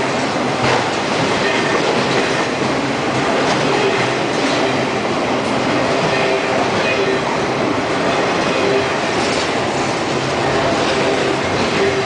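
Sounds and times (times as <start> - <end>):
steel wheels running on rails: 0.0 - 12.0
wheels clickety-clack over track: 0.0 - 12.0.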